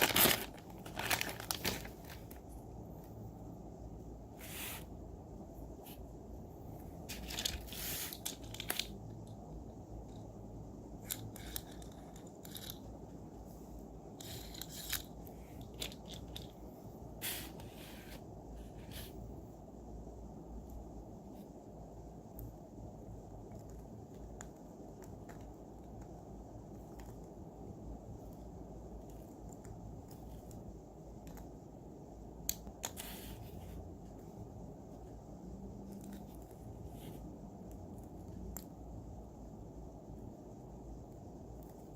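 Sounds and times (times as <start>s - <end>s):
packaging rustling: 0.0s - 2.4s
low background hum: 0.0s - 41.9s.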